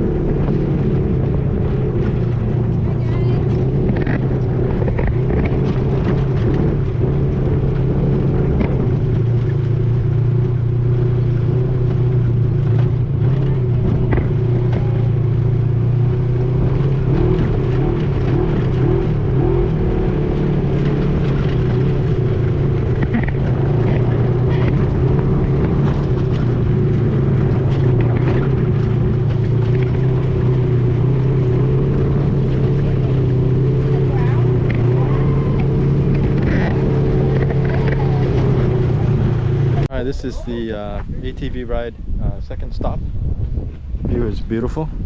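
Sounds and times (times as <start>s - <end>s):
vehicle engine running: 0.0s - 45.0s.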